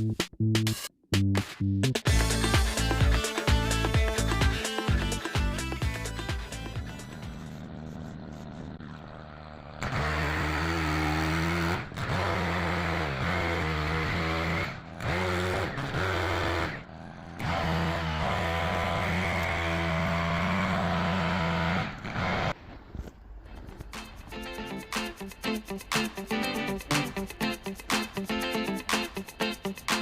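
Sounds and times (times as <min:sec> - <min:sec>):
chainsaw engine running: 0:02.1 - 0:22.6.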